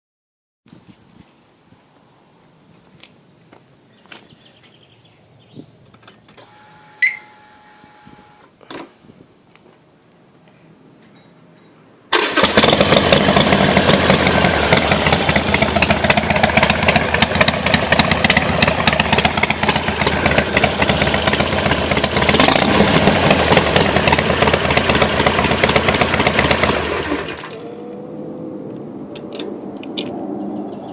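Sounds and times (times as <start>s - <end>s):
motorcycle engine running: 12.6s - 28.0s.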